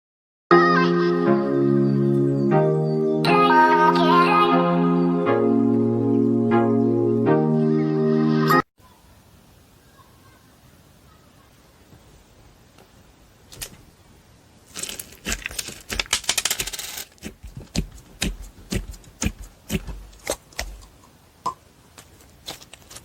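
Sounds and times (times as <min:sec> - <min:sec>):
slime crackling and popping: 0:14.7 - 0:20.9.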